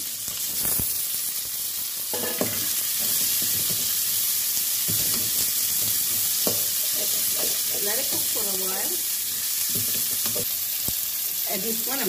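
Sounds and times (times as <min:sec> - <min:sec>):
vegetables sizzling in hot oil: 0:00.0 - 0:12.0
metal spatula scraping pan: 0:02.1 - 0:03.9, 0:04.9 - 0:08.4.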